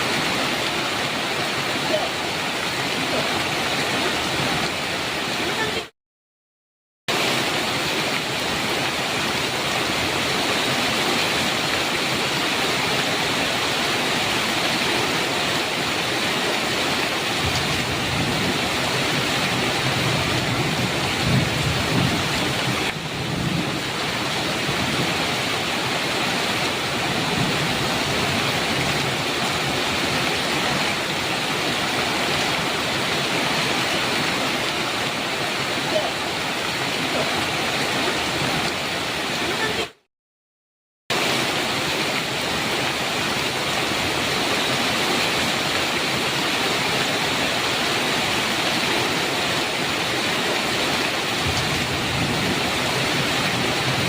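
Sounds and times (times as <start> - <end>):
heavy rain on metal roof: 0.0 - 5.9, 7.1 - 40.1, 41.1 - 54.0
thunder rumbling: 51.4 - 54.0.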